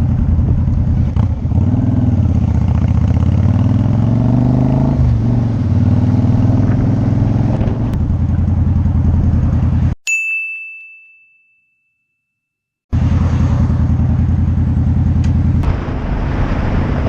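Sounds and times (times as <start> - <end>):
motorcycle engine running: 0.0 - 10.0, 12.9 - 16.0.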